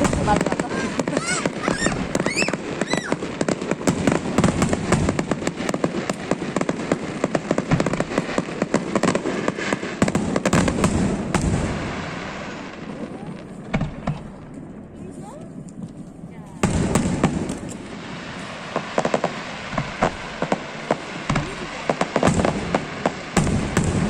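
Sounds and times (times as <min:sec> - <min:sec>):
fireworks crackling and popping: 0:00.0 - 0:24.0
firework whistles: 0:00.6 - 0:03.5.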